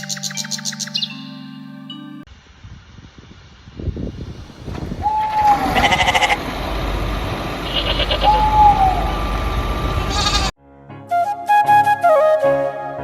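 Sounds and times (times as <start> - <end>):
goat bleating: 5.2 - 6.4, 7.6 - 8.6, 10.1 - 10.5
flute music: 8.2 - 10.0, 10.6 - 13.0.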